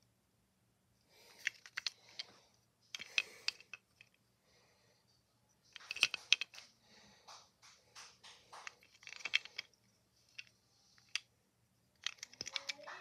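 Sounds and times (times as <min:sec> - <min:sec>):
small hard objects clattering: 0:05.8 - 0:06.7, 0:08.5 - 0:09.7, 0:12.0 - 0:13.0.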